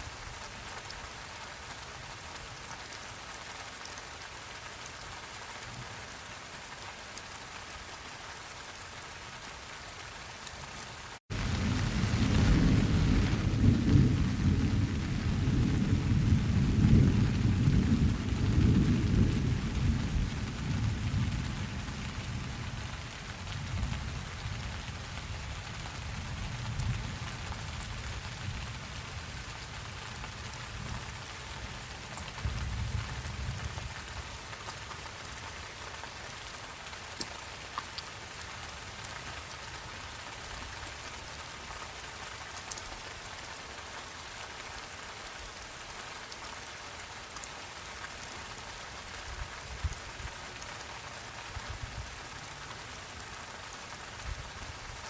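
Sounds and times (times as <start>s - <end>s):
steady rain: 0.0s - 55.0s
rolling thunder: 11.3s - 22.7s.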